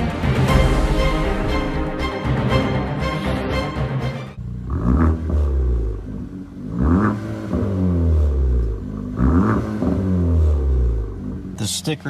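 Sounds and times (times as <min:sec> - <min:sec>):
intro music: 0:00.0 - 0:05.8
car engine revving: 0:02.9 - 0:12.0.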